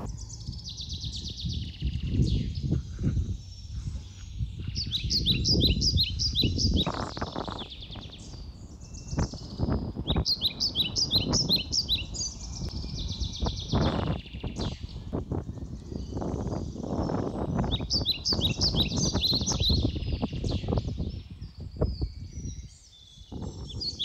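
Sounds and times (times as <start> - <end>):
low rumble: 0.0 - 5.2
songbird chirping: 0.0 - 24.0.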